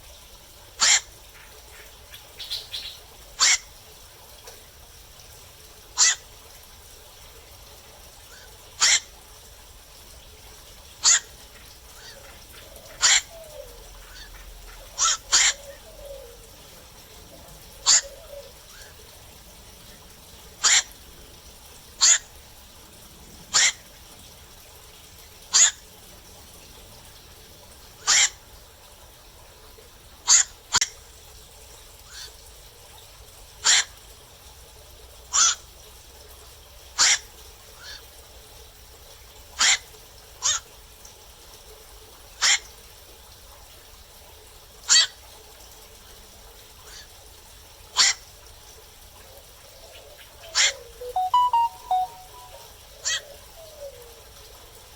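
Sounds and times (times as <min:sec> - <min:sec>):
heron calling: 0:15.0 - 0:16.4, 0:17.8 - 0:18.5, 0:49.9 - 0:53.9.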